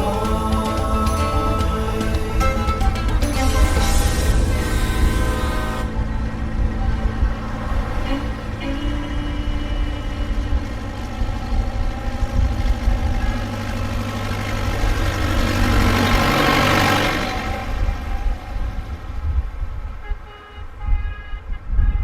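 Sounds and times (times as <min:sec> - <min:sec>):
tractor engines running: 0:00.0 - 0:20.0.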